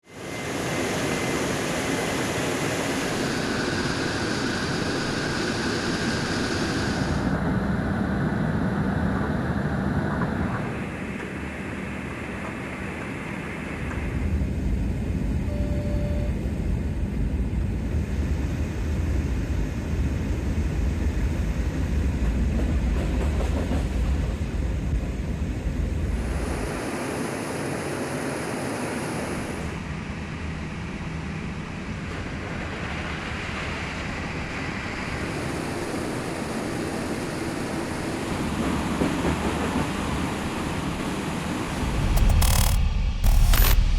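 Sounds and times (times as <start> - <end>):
deep rumble: 41.7 - 43.9.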